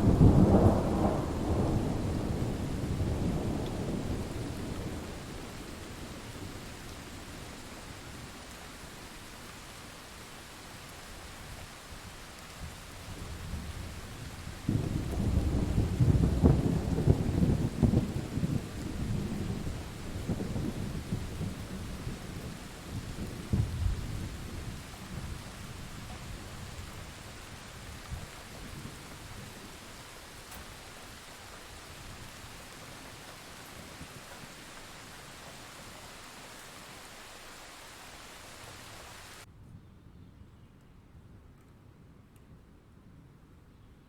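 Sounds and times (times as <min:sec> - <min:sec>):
thunder rumbling and crackling: 0:00.0 - 0:08.4, 0:12.6 - 0:37.4
steady rain: 0:00.0 - 0:39.5.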